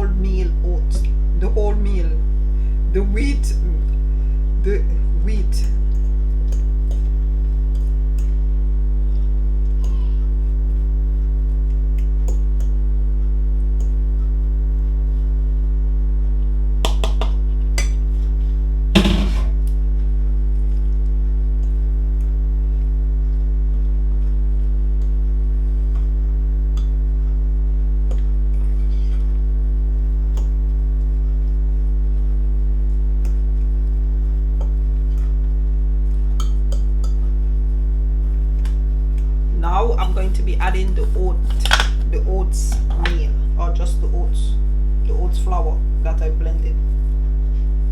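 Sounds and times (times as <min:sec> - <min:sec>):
low electrical hum: 0:00.0 - 0:47.9
sharp knock: 0:19.0 - 0:19.6.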